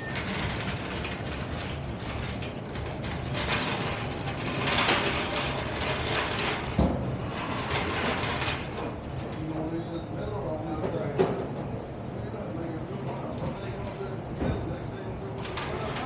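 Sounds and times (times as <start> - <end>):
mechanical ratcheting and clanking: 0.0 - 8.8.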